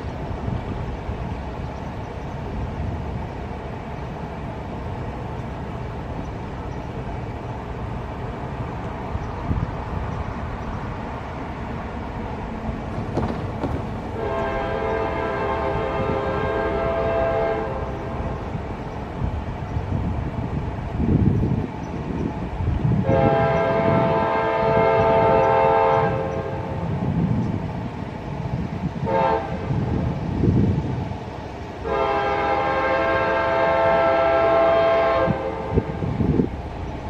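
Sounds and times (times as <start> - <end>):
freight train rumbling: 0.0 - 37.0
locomotive air horn: 14.1 - 17.9, 23.0 - 26.8, 29.0 - 29.9, 31.8 - 36.1.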